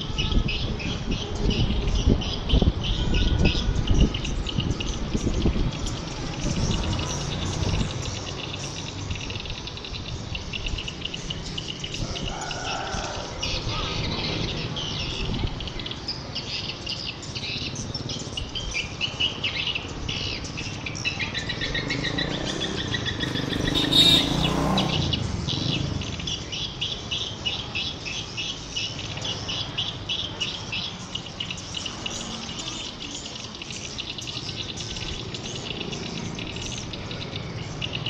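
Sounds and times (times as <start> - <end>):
swiftlets twittering chorus: 22.4 - 25.1.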